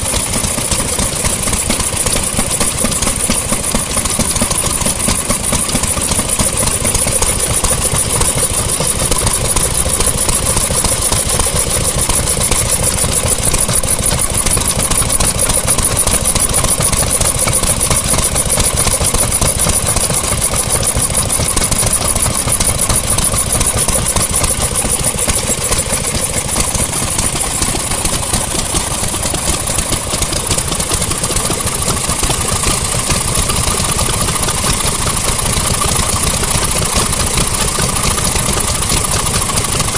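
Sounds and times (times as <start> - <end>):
engines running: 0.0 - 39.9
high-pitched whine: 2.1 - 29.7.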